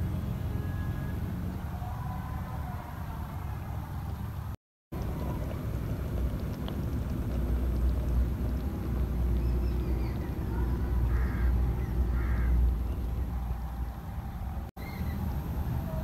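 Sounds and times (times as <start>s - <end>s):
steady low rumble: 4.1s - 16.0s
bird harsh calls: 9.4s - 13.2s, 14.8s - 15.3s.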